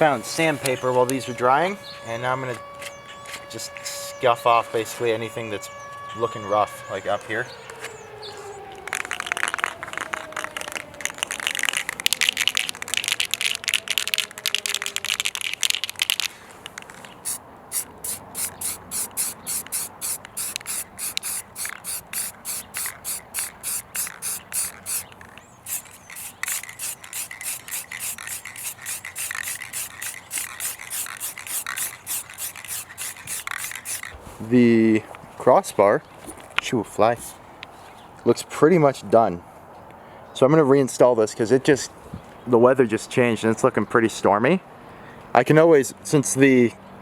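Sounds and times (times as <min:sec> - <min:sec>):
sandpaper rubbing by hand: 0:17.2 - 0:34.2.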